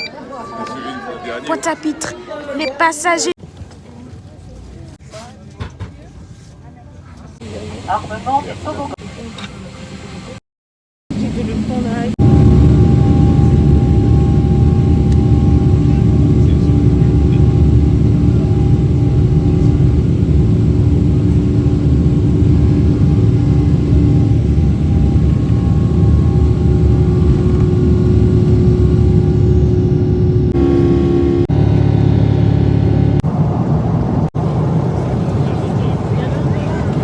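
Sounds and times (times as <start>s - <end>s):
jet engine rumble in cabin: 11.1s - 37.0s
steady hums: 11.1s - 37.0s.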